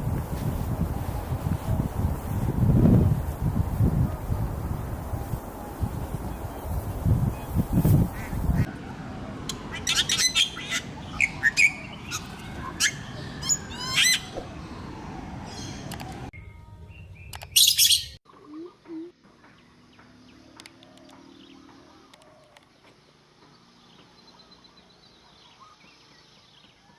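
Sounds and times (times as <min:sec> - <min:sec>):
wind buffeting microphone: 0:00.0 - 0:08.7
birds chirping and trilling: 0:09.5 - 0:26.9.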